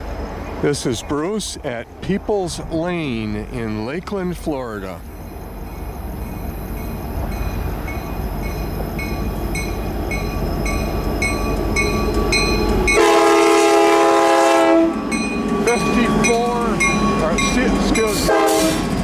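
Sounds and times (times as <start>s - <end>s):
crossing bell dinging: 0.0s - 19.0s
train rumble: 0.0s - 19.0s
train air horn blast: 12.8s - 15.1s, 18.0s - 18.9s.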